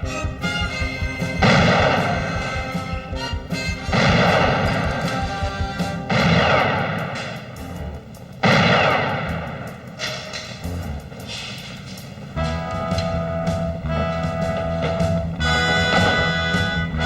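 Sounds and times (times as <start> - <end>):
dramatic music score: 0.0 - 17.0
heavy gunshots: 0.5 - 7.8, 8.4 - 10.4.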